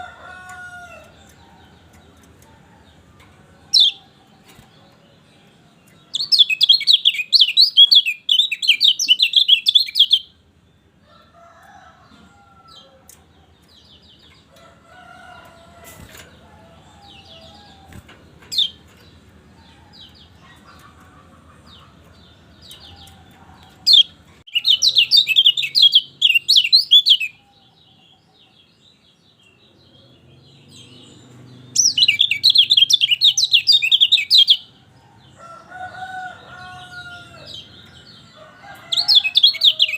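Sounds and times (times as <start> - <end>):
bird chirping warbles: 1.0 - 11.0, 15.4 - 34.9.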